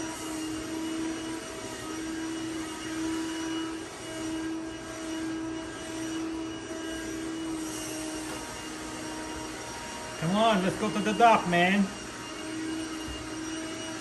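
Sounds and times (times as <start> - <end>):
robot vacuum cleaner running: 0.0 - 14.0.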